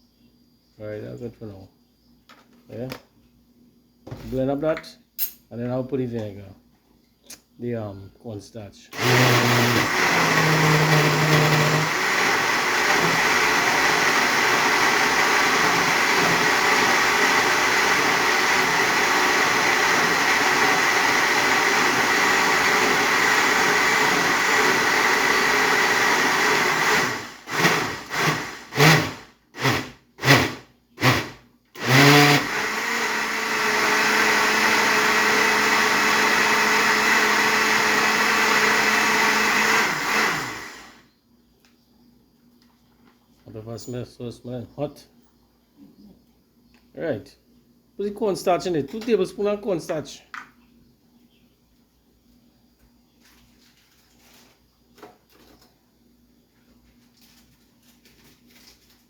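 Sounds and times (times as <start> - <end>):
electric blender whining: 9.0 - 41.0.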